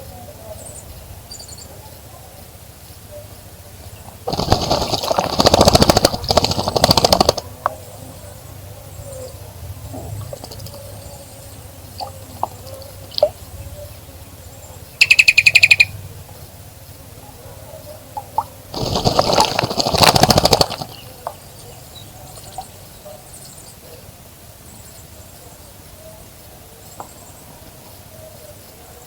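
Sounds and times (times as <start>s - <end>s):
bird splashing in water: 4.1s - 7.4s, 18.4s - 21.4s
rattling bird call: 14.9s - 16.0s.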